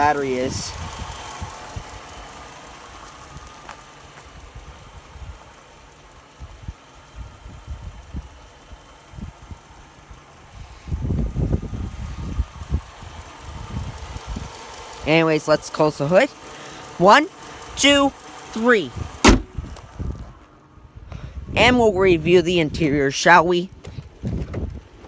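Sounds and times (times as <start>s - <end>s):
car engine idling: 0.0s - 25.0s
low bumps: 19.0s - 20.5s.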